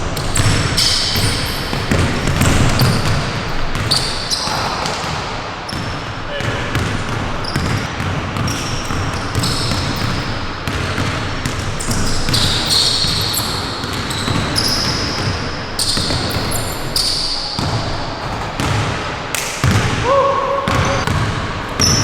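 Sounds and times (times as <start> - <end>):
basketball bouncing: 0.1 - 22.0
sneakers squeaking on hardwood: 0.2 - 18.9, 20.7 - 22.0.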